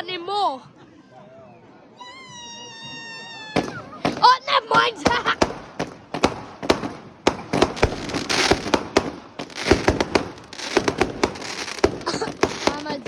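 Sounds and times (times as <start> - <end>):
fireworks bangs: 3.5 - 13.0
crackling firework hiss: 5.3 - 13.0.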